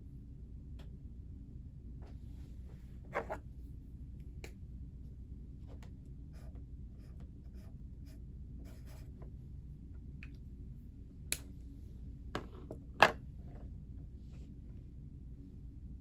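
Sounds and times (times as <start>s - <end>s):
low room hum: 0.0s - 16.0s
pen scratching on paper: 6.4s - 9.1s.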